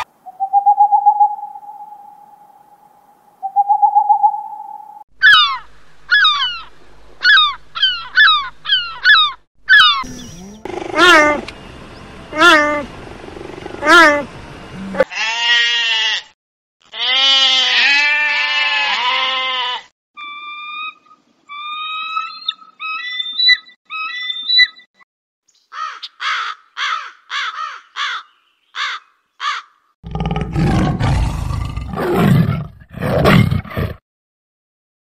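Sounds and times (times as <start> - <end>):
raven croaking: 7.3 - 11.5, 12.3 - 15.1
tigers roaring and growling: 10.0 - 11.5, 12.3 - 15.1, 30.1 - 34.0
sheep bleating: 15.0 - 19.9.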